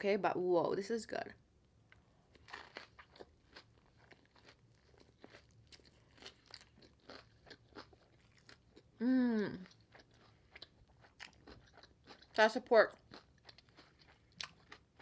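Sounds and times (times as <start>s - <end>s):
chewing crunchy food: 1.9s - 9.0s, 9.6s - 15.0s
person humming mmm: 9.0s - 9.7s.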